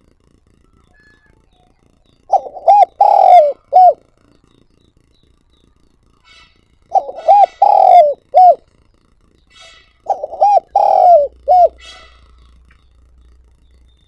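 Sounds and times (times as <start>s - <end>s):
dove cooing: 2.3s - 4.0s, 6.3s - 8.7s, 9.5s - 13.4s.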